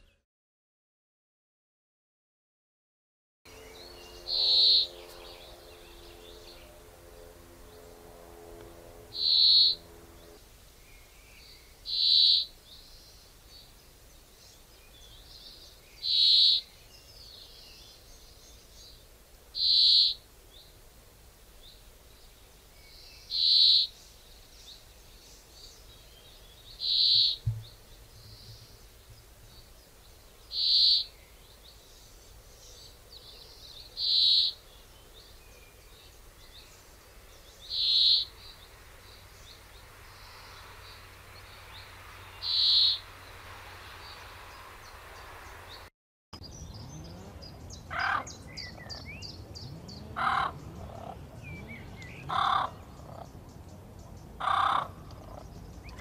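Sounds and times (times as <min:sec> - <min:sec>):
mixed bird calls: 0:03.5 - 0:08.0, 0:09.0 - 0:19.0, 0:19.6 - 0:20.8, 0:21.6 - 0:56.0
bird short high call: 0:03.6 - 0:06.8, 0:42.3 - 0:43.1.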